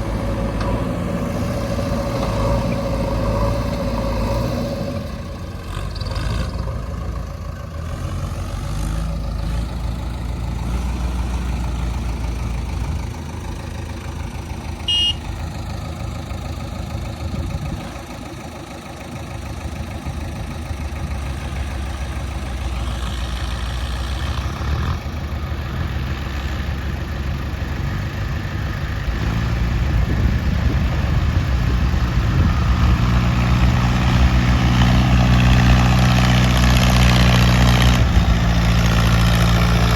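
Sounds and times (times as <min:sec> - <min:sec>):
heavy diesel engines running: 0:00.0 - 0:39.9
brief high tone: 0:14.9 - 0:15.3.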